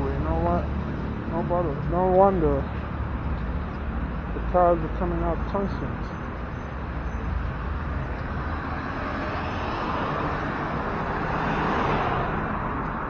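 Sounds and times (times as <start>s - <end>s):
highway traffic rushing: 0.0s - 13.0s.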